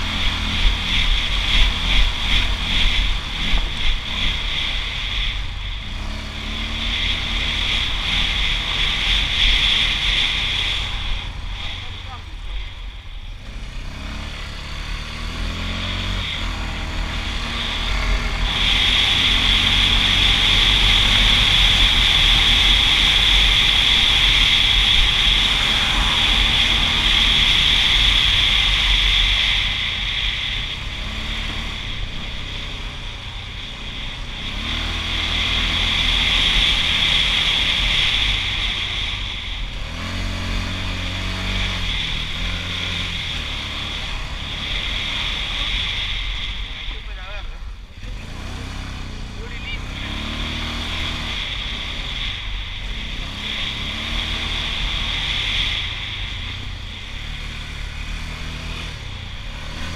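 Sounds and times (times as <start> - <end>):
atv engine accelerating: 0.0 - 59.9.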